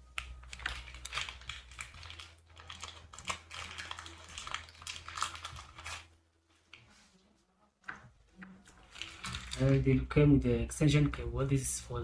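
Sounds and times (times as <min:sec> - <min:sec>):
packaging rustling: 0:00.2 - 0:07.0, 0:08.7 - 0:10.0
small machine parts clattering: 0:08.9 - 0:09.8.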